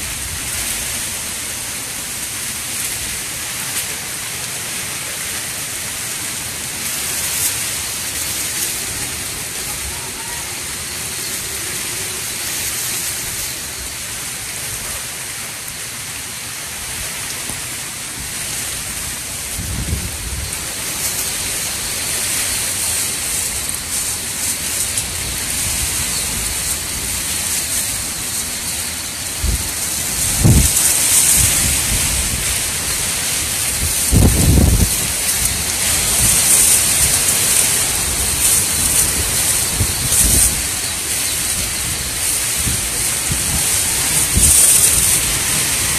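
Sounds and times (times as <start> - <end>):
driving rain: 0.0 - 45.9
hurricane wind: 0.0 - 45.9
deep rumbling wind gusts: 18.2 - 45.9.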